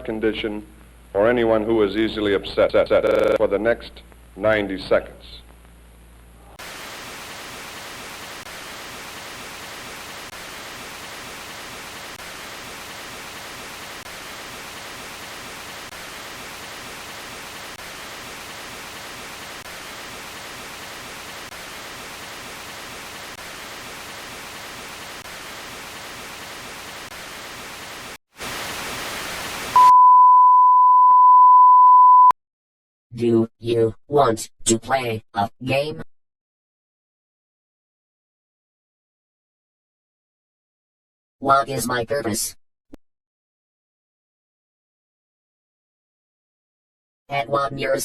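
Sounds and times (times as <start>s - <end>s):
static hiss: 6.4s - 29.9s
test-tone beep: 29.8s - 32.3s.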